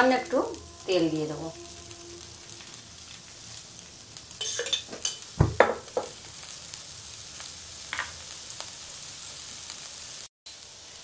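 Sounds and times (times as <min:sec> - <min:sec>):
batter sizzling in oil: 0:00.0 - 0:11.0.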